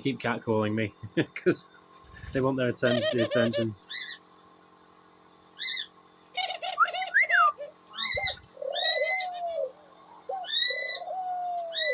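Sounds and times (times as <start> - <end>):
cockatiels calling: 2.8 - 4.2, 5.6 - 9.7, 10.3 - 11.9
dove cooing: 2.9 - 3.7, 6.4 - 11.9
short shrill calls: 5.6 - 9.7
rising-and-falling whistles: 6.7 - 9.7.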